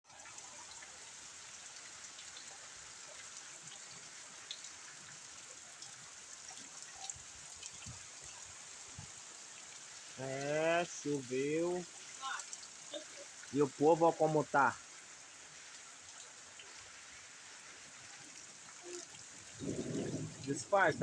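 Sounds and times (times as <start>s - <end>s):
raindrops ticking on surfaces: 0.1s - 21.0s
rain hissing: 7.0s - 21.0s.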